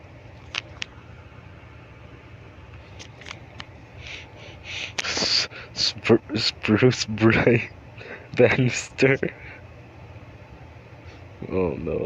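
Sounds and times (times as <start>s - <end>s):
steady low hum: 0.0s - 12.0s
soft hissy puffs: 2.8s - 5.9s.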